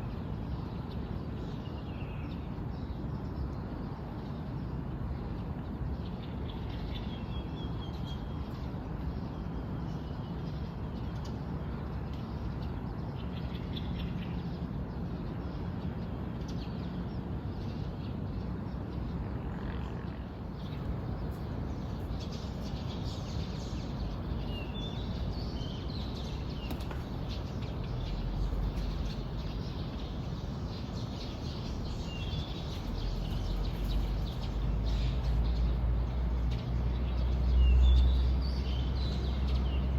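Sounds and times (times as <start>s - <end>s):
songbirds chirping: 0.0s - 19.2s, 20.0s - 39.9s
low background rumble: 20.5s - 39.9s.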